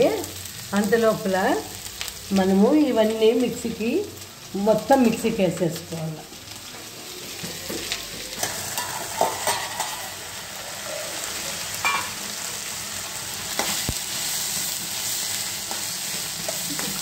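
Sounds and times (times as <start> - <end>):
vegetables sizzling in oil: 0.0 - 17.0
steel spoon scraping pan: 8.4 - 10.2.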